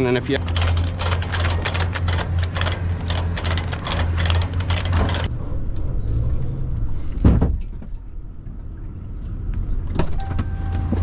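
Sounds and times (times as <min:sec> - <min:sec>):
truck engine drone: 0:00.0 - 0:07.2.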